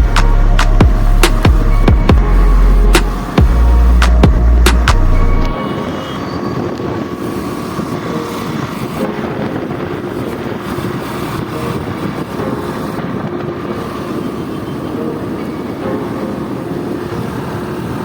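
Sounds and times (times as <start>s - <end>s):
motorbike engine and tyre noise: 0.0s - 18.0s
passing vehicles: 0.0s - 18.0s.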